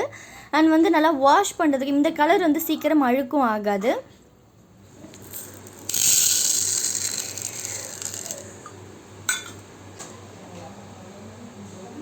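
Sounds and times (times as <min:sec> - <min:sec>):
dry spices pouring: 0:05.2 - 0:08.6.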